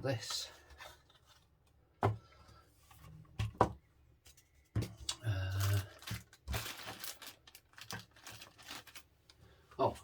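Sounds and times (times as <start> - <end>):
plastic packaging rustling: 5.5 - 9.3.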